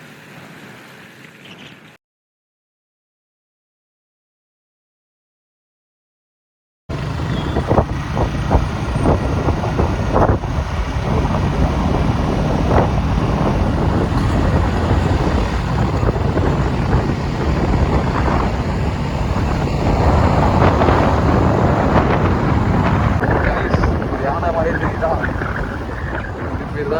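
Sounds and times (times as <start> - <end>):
motorcycle engine drone: 6.9 - 26.9
road noise: 6.9 - 26.9
wind buffeting microphone: 6.9 - 26.9.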